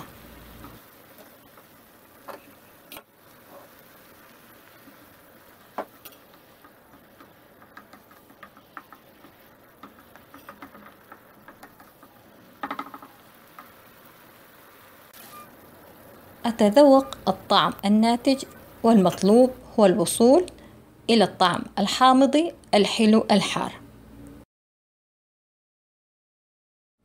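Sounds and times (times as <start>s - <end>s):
wooden spatula stirring sauce: 4.7s - 13.9s.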